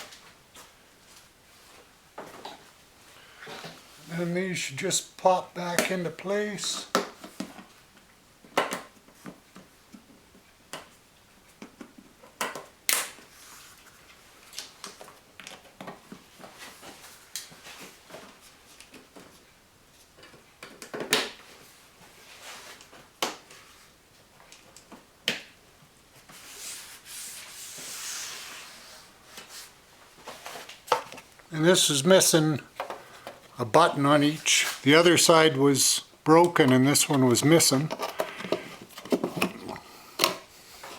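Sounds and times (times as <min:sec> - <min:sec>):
rustling scrape: 0:26.3 - 0:30.8, 0:34.4 - 0:34.9.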